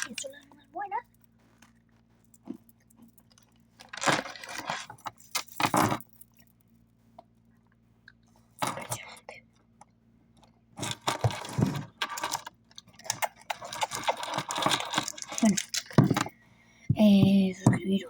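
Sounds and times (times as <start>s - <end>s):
snacks crunching and crinkling: 10.8s - 16.3s.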